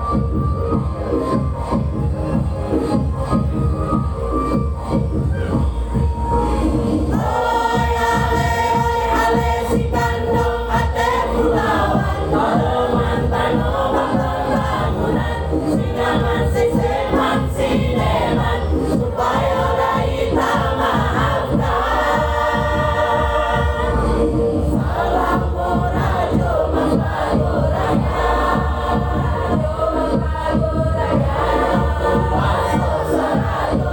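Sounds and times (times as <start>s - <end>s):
amplified backing with beat: 0.0s - 33.9s
choir singing held chords: 7.0s - 33.9s.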